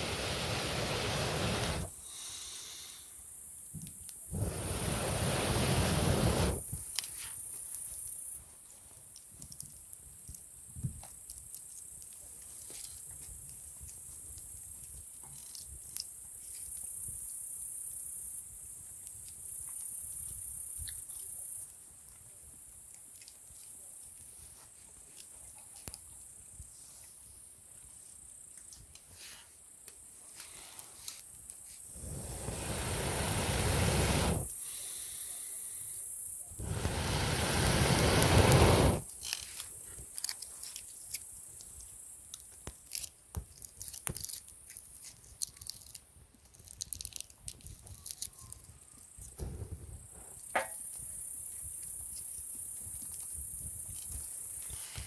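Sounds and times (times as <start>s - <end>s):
campfire crackling and popping: 0.0s - 1.9s, 4.1s - 7.1s, 31.9s - 34.6s, 36.5s - 39.4s
air blown through pipe into fire: 0.0s - 2.0s, 4.3s - 6.8s, 31.9s - 34.9s, 36.5s - 39.1s.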